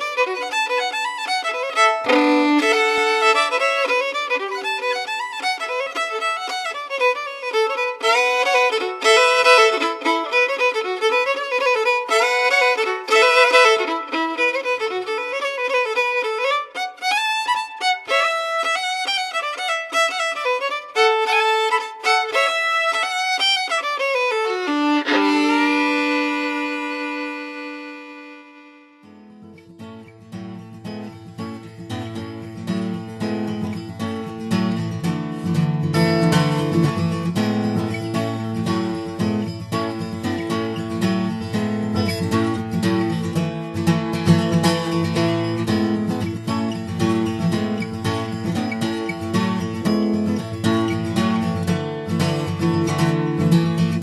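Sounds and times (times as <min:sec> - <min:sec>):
solo fiddle playing lively tune: 0:00.0 - 0:29.1.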